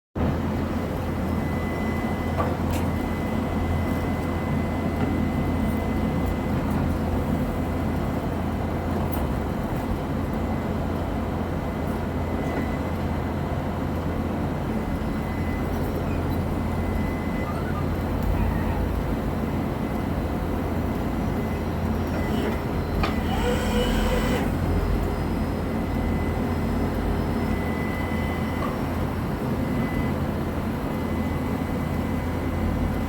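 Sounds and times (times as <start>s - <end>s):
drilling rig engine hum: 10.4s - 33.0s.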